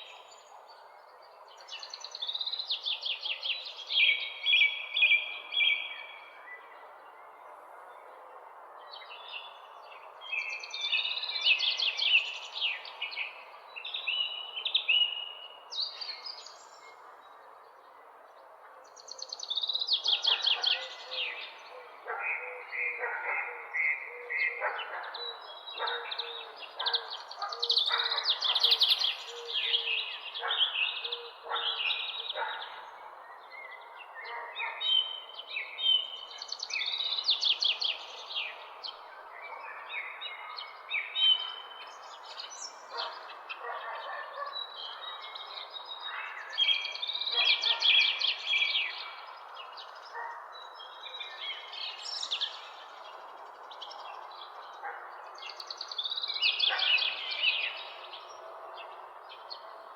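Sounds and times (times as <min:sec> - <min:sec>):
birds chirping and singing: 0:18.8 - 0:59.9.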